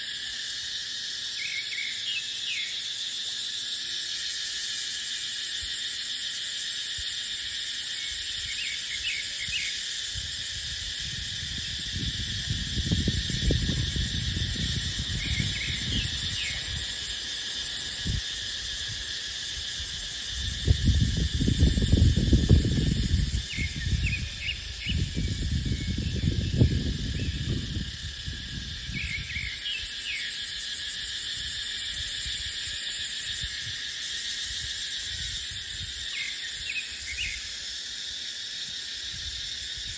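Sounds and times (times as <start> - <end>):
cicadas droning: 0.0 - 39.9
wind buffeting microphone: 10.1 - 17.2, 19.8 - 29.5.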